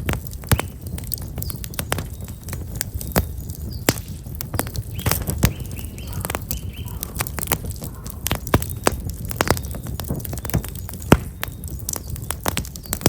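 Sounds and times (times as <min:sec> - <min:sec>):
firewood crackling and popping: 0:00.0 - 0:13.0
low fire rumble: 0:00.0 - 0:13.0
small birds chirping: 0:00.2 - 0:13.0.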